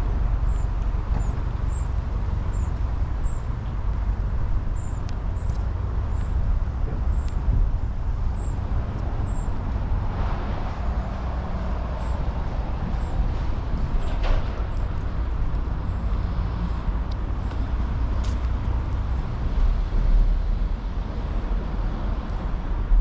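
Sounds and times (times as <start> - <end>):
broad rushing noise: 0.0 - 23.0
steady low rumble: 0.0 - 23.0.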